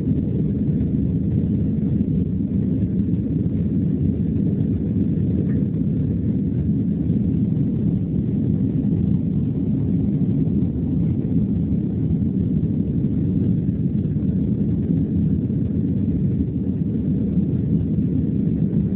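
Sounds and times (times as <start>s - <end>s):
jet engines rumbling in cabin: 0.0s - 18.9s.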